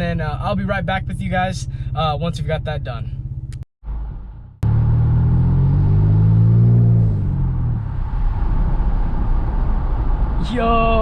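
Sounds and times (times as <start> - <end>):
truck engine rumbling while driving: 0.0 - 11.0.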